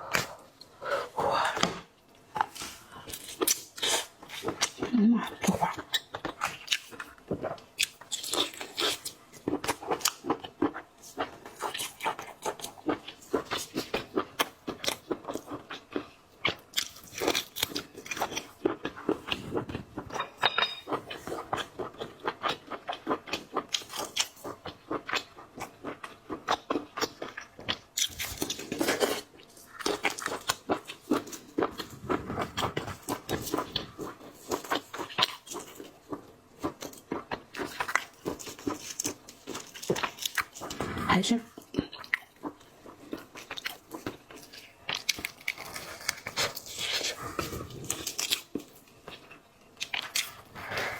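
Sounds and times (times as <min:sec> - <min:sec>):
crunching seafood: 0:02.4 - 0:50.9.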